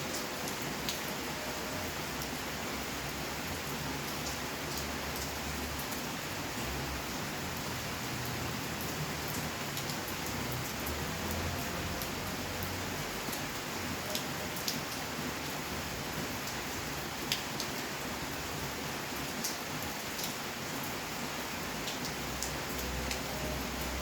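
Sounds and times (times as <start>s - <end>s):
raindrops ticking on surfaces: 0.0s - 24.0s
steady rainfall hiss: 0.0s - 24.0s.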